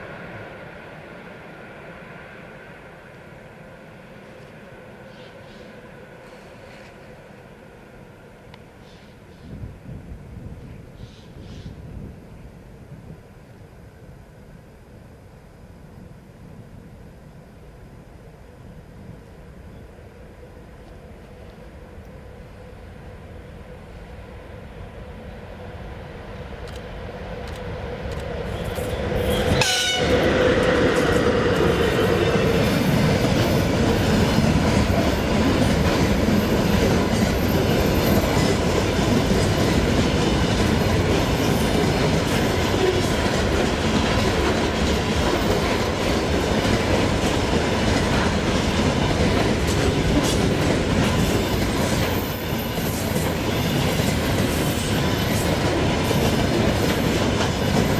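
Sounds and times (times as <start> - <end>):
electric locomotive passing: 0.0 - 57.9
train wagons rumbling and clattering: 27.3 - 57.9
locomotive horn tone: 28.6 - 30.3.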